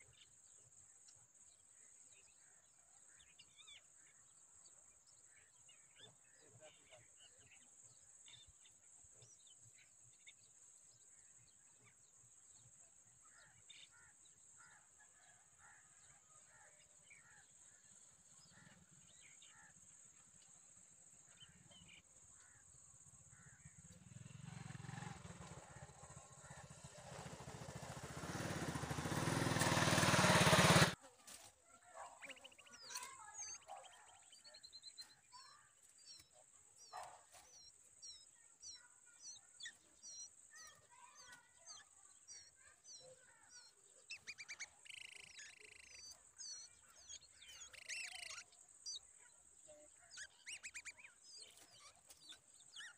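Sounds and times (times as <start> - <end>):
faint bird chirps: 31.0 - 52.9.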